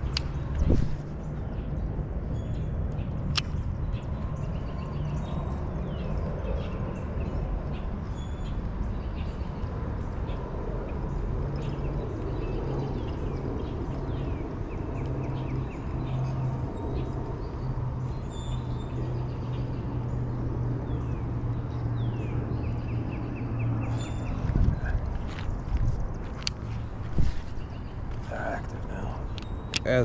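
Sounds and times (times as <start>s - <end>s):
birds chirping: 0.0s - 30.0s
low rumble: 11.3s - 29.6s.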